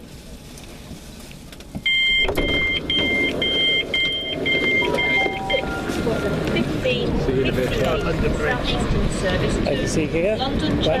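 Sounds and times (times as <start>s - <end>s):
station and train noise: 0.0s - 11.0s
two-tone electronic door beeps: 1.8s - 6.8s.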